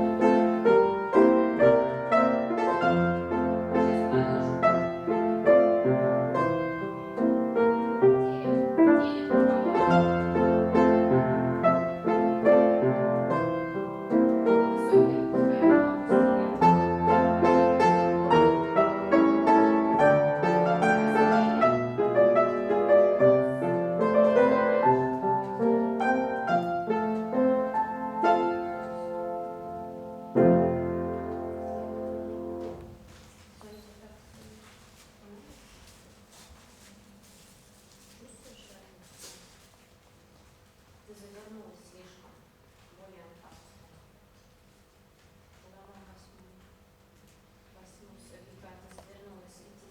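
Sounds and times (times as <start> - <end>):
classical piano playing: 0.0 - 33.1.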